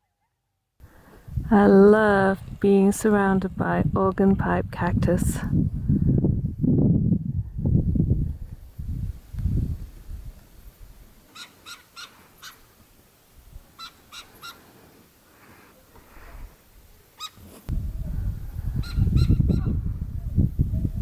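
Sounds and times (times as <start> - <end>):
low rumbling noise: 0.8 - 11.1, 17.7 - 21.0
bird calling harsh notes: 11.3 - 12.6, 13.8 - 14.7.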